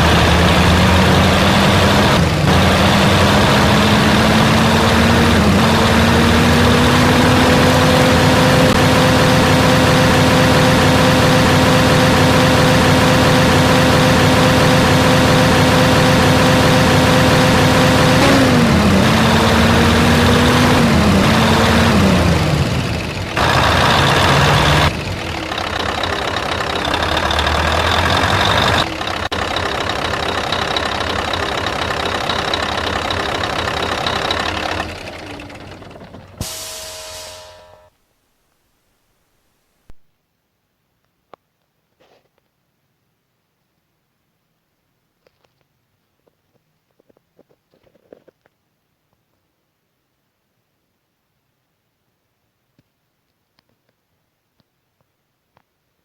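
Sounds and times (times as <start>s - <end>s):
truck engine running: 0.0s - 37.9s.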